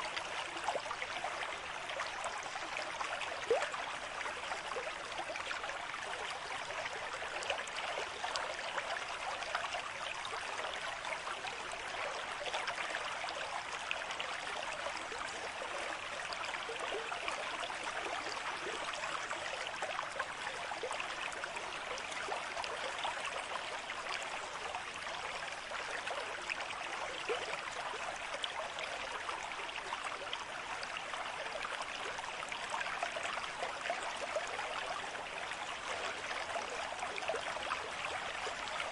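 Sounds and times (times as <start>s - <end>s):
stream water trickling: 0.0s - 38.9s.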